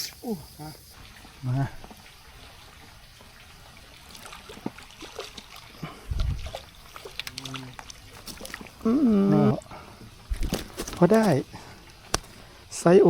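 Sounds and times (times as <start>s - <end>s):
fish splashing in water: 3.8s - 9.0s, 9.7s - 12.6s.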